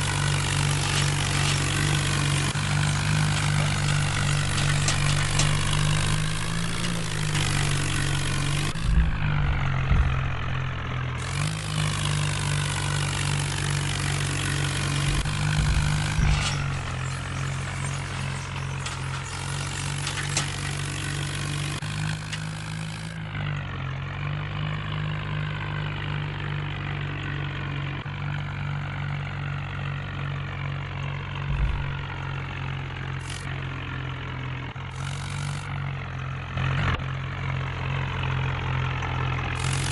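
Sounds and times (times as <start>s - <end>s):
tractor engine running: 0.0s - 39.9s
low thumps: 3.4s - 11.2s, 31.5s - 32.3s.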